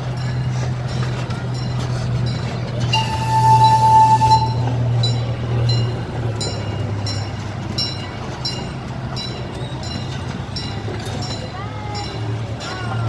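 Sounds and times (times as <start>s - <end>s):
miniature train engine hum: 0.0s - 13.0s
train wheels clicking: 0.0s - 13.0s
high squeal: 2.9s - 4.7s.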